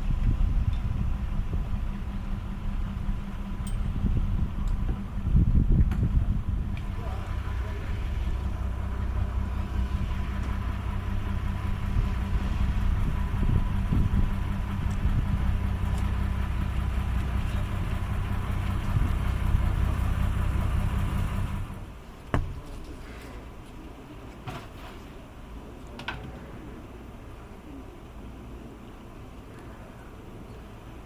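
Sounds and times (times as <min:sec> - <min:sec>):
vehicle engine humming: 0:00.0 - 0:22.1.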